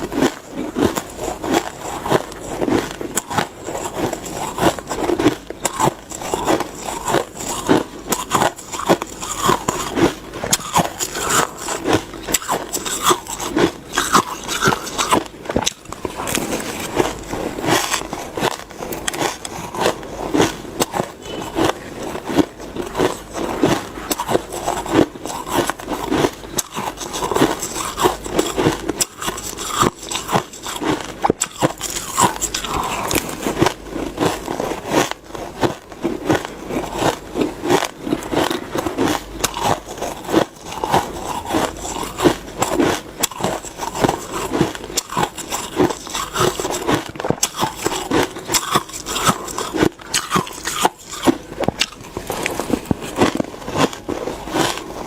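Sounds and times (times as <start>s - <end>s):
ice being chewed and crunched: 0.0s - 55.0s.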